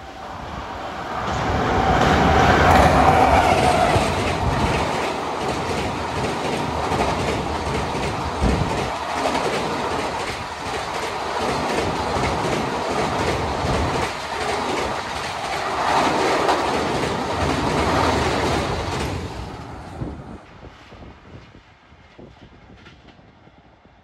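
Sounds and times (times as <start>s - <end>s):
train wheels clattering over rails: 1.2s - 19.8s.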